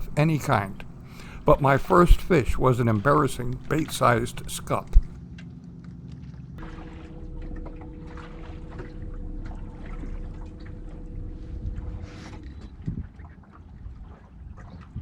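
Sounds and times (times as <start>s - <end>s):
low wind rumble: 0.0s - 5.2s
steady hum: 0.0s - 5.2s
water lapping against boat hull: 0.0s - 5.2s, 6.6s - 11.0s, 11.8s - 15.0s.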